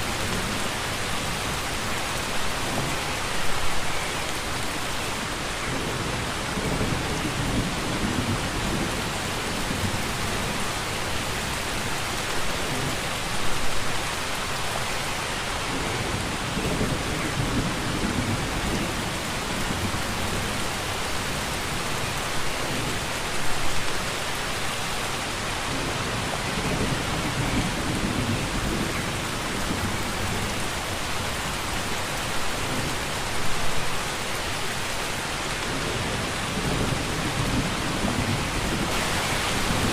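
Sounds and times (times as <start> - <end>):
heavy rain: 0.0 - 39.9
low rumble of thunder: 5.6 - 10.8, 15.7 - 20.6, 25.6 - 30.8, 35.7 - 39.9.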